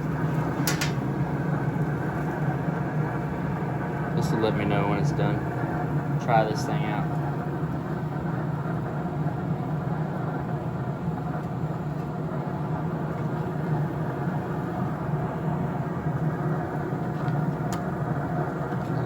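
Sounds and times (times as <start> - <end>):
pellet grill fan humming: 0.0 - 19.0.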